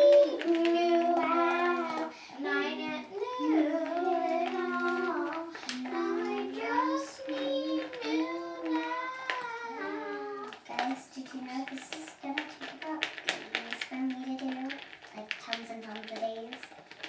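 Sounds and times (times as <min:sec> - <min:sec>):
children singing: 0:00.0 - 0:13.4.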